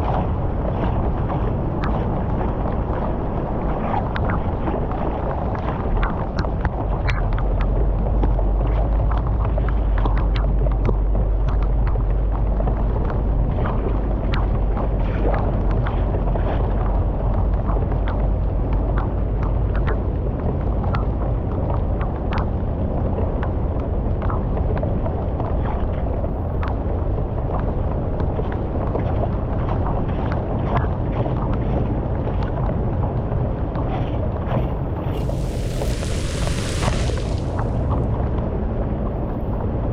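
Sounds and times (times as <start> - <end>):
sharp splashes: 35.2 - 38.0
flood water rushing through culvert: 35.2 - 38.1.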